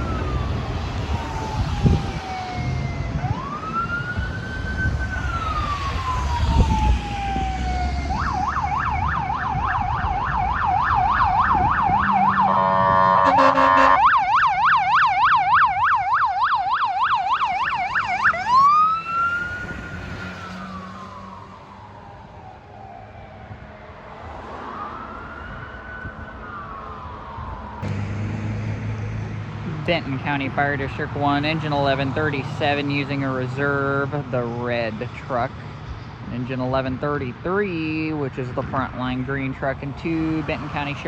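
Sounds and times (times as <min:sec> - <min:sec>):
fire engine siren: 0:00.0 - 0:29.6
truck engine rumble: 0:00.0 - 0:41.0
horn blast: 0:12.0 - 0:14.1.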